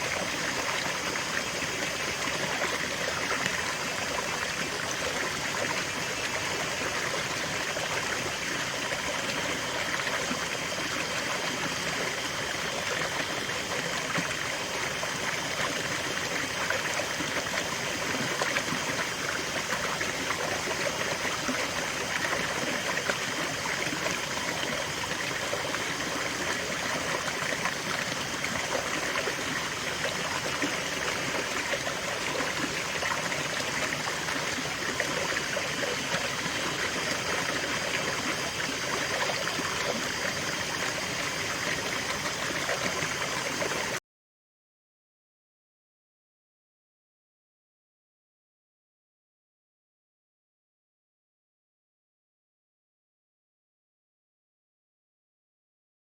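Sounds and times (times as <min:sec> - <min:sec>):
stream flowing over rocks: 0:00.0 - 0:44.0.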